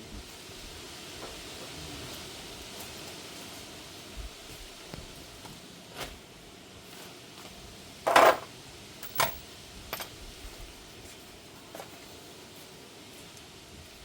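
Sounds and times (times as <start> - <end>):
metal tools clanking: 8.1 - 10.2.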